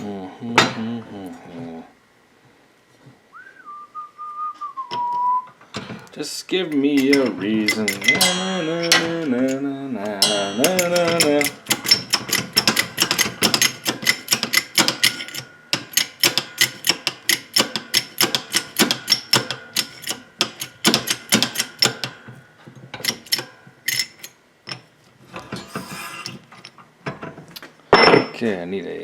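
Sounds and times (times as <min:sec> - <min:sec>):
metallic clicks from hand tools: 0:06.7 - 0:22.2, 0:23.0 - 0:24.8.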